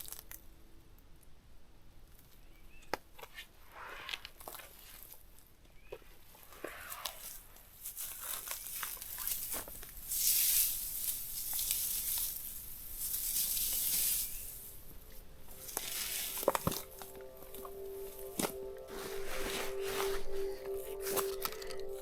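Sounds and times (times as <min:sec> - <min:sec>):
rustling and crinkling handling: 0:07.2 - 0:22.0
hissy passes: 0:12.4 - 0:22.0
music with held note: 0:14.2 - 0:22.0.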